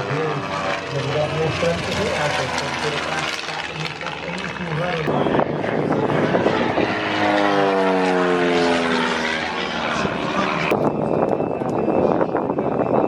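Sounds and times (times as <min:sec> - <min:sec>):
propeller airplane flying past: 0:00.0 - 0:13.0.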